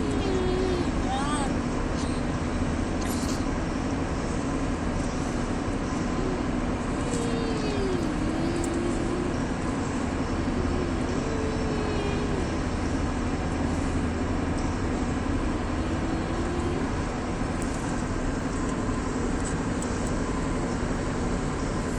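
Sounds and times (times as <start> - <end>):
boy humming faintly: 0.0 - 2.3, 6.0 - 14.1, 15.2 - 19.2
steady low hum and rumble: 0.0 - 21.9.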